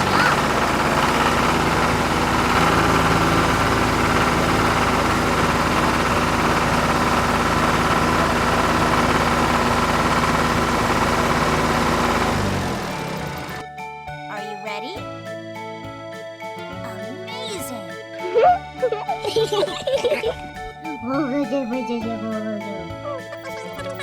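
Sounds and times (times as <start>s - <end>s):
cartoon vehicle engine drone: 0.0s - 13.7s, 17.3s - 24.0s.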